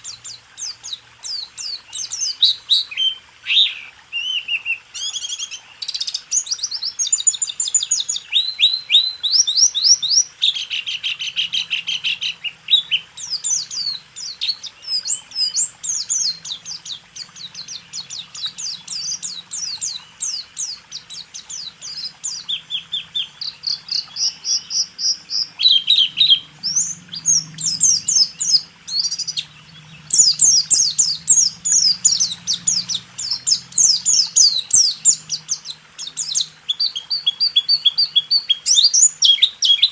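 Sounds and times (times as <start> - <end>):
bird singing rapid trills: 0.0 - 39.9.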